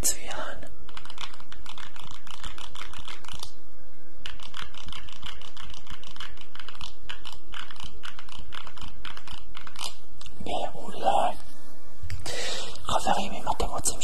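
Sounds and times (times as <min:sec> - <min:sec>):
rapid clicking and tapping: 0:00.9 - 0:03.5, 0:04.2 - 0:10.0.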